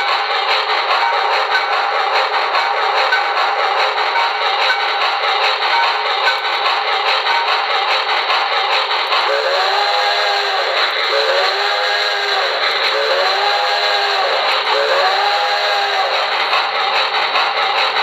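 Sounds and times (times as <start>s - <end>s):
steam hiss: 0.0s - 18.0s
steam whistle blasts from speaker: 9.3s - 16.1s.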